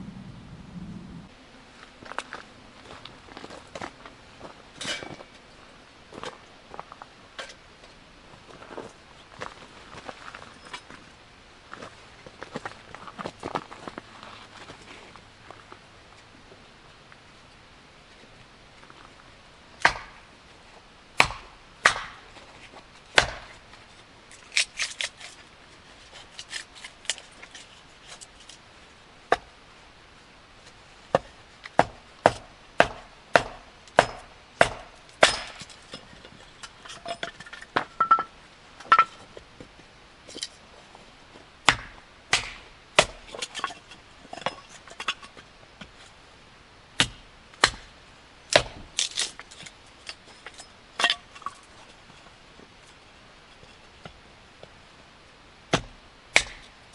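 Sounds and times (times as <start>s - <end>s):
blade chopping wood: 19.8s - 20.3s, 21.2s - 22.2s, 23.2s - 23.6s, 31.1s - 35.8s, 41.6s - 43.7s, 47.0s - 47.9s, 48.5s - 49.4s, 55.7s - 56.7s.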